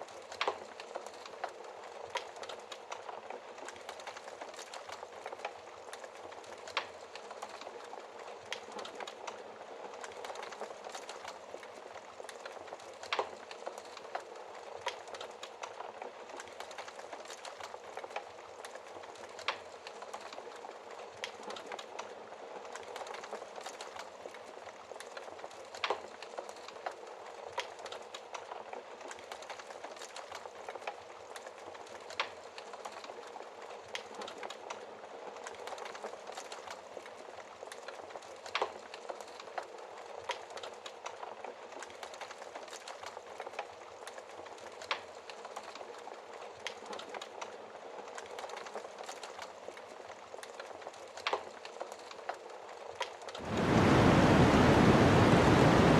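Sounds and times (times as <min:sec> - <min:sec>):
wood fire crackling: 0:00.0 - 0:55.9.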